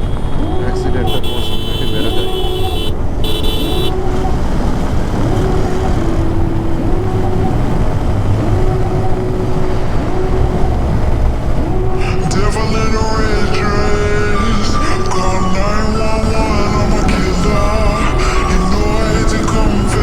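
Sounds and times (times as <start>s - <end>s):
high steady tone: 0.0s - 20.0s
motorcycle riding: 0.0s - 20.0s
rising tone: 3.6s - 20.0s.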